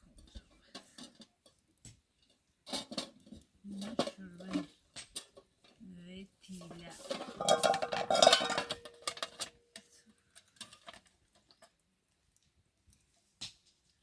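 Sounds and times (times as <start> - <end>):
hard objects clattering: 0.0 - 5.8, 6.5 - 11.8.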